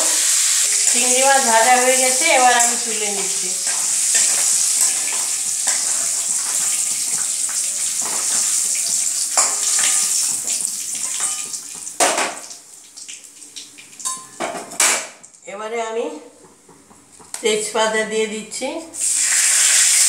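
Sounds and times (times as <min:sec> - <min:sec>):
prawns sizzling in oil: 0:00.0 - 0:14.9, 0:19.0 - 0:20.0.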